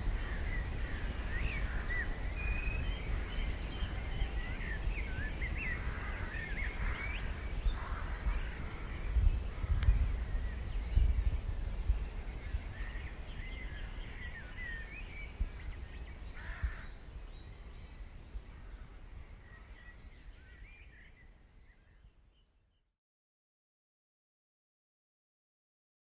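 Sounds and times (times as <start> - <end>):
birds calling: 0.0 - 21.9
wind buffeting microphone: 0.0 - 22.2
harsh caw-like call: 16.4 - 16.9.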